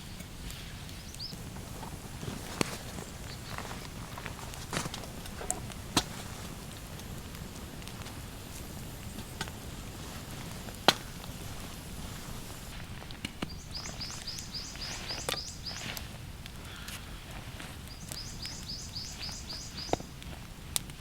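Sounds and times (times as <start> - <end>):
outdoor hiss: 0.0 - 21.0
bird chirping: 2.6 - 4.2, 13.5 - 16.0, 17.9 - 20.1.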